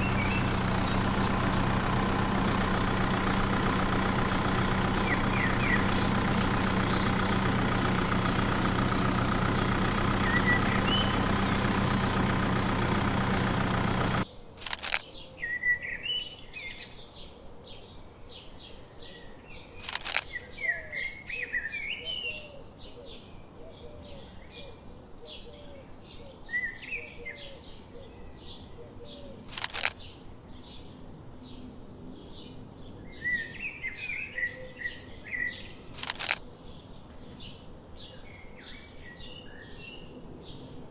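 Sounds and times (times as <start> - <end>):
small birds chirping: 0.0 - 2.0, 4.9 - 7.4, 14.6 - 15.3, 19.6 - 20.4, 29.5 - 30.8, 35.0 - 39.5
engine-like drone: 0.0 - 15.0
sharp click: 14.6 - 15.0, 19.8 - 20.2, 29.5 - 30.0, 36.0 - 36.4.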